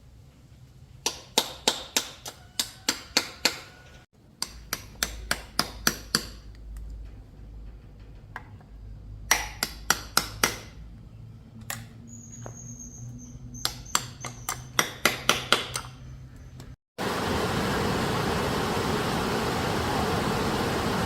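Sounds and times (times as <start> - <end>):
hammer tapping on metal: 4.4 - 6.6, 9.3 - 10.8.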